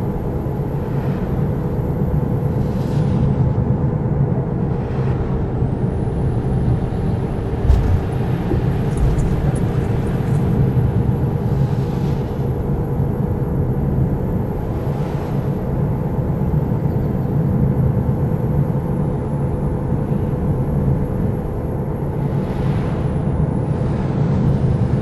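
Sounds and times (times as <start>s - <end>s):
coach engine and road rumble: 0.0s - 25.0s
low thump: 7.6s - 9.4s.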